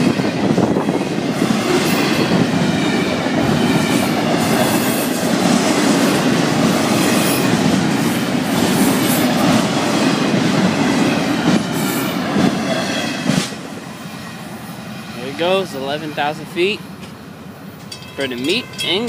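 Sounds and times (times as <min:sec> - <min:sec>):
steel wheels rumbling on rail: 0:00.0 - 0:19.0.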